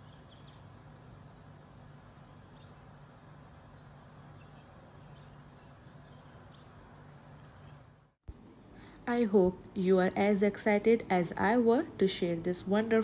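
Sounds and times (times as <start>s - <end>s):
small birds chirping: 0.0s - 1.6s, 2.2s - 3.0s, 3.6s - 7.9s
low background hum: 0.0s - 13.0s.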